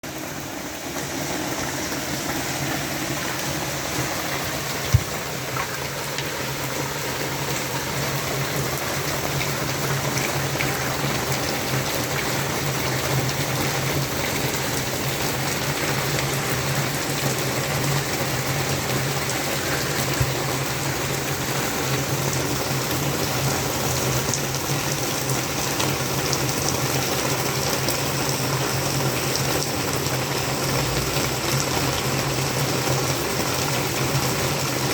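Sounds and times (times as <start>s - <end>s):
heavy rain falling: 0.0s - 34.9s.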